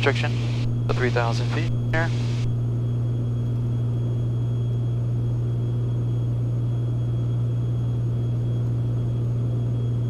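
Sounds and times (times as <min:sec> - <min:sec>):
propeller plane engine drone: 0:00.0 - 0:10.0.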